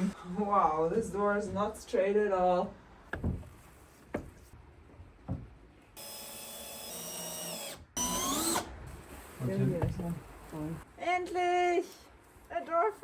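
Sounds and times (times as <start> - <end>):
power drill driving a screw: 6.0 - 8.7.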